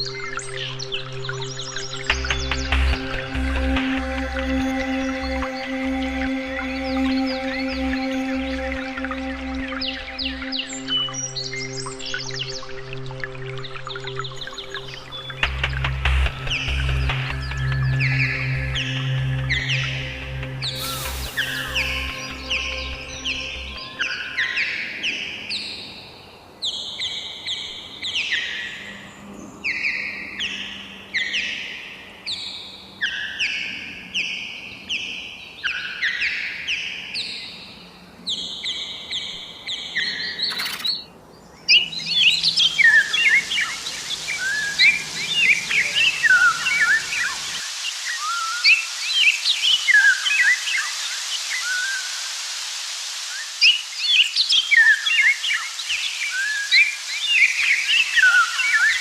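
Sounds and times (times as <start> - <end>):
chorus of birds chirping: 0.0 - 59.0
steady hiss: 14.8 - 25.5, 41.9 - 59.0.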